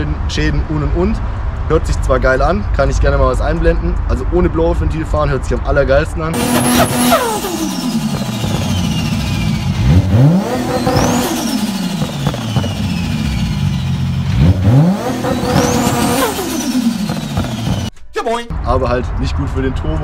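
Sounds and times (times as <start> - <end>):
car engine revving: 6.3 - 17.9
high turbo whistle: 6.4 - 14.2.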